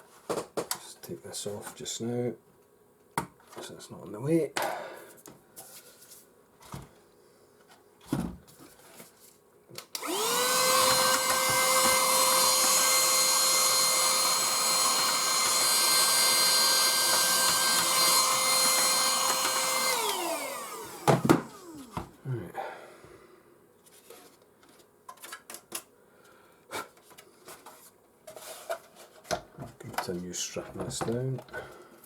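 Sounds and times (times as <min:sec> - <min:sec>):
small electric motor whining: 0:10.0 - 0:22.0.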